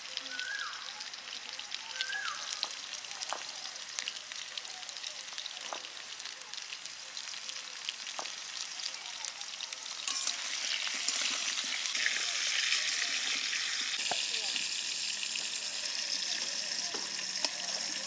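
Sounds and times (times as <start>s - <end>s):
potatoes sizzling in oil: 0.0s - 18.0s
small oil pops: 2.6s - 3.5s.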